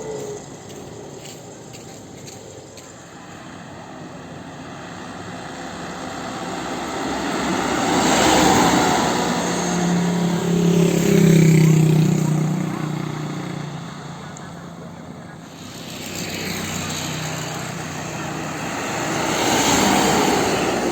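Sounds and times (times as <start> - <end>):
heavy vehicle passing: 0.0 - 20.9.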